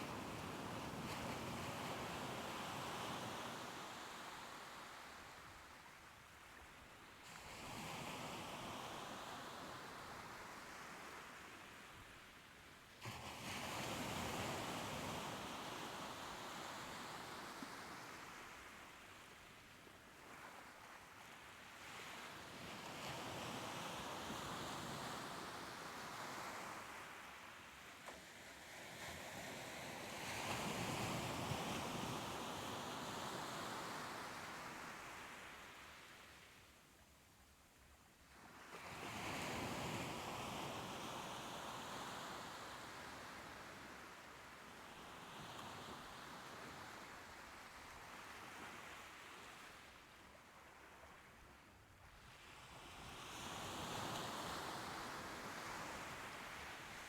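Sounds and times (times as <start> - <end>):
soft ocean waves on shore: 0.0 - 57.0.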